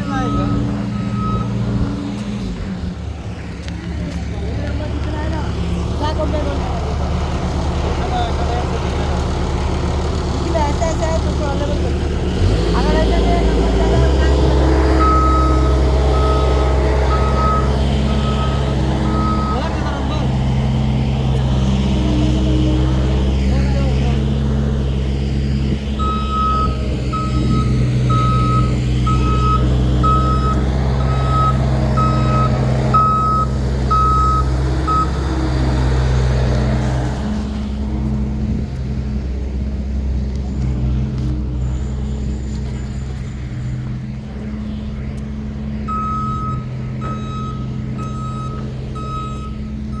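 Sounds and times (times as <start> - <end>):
reverse alarm beeping: 0.0 - 1.6, 14.3 - 19.9, 26.0 - 35.2, 45.9 - 50.0
diesel machine engine running: 0.0 - 50.0.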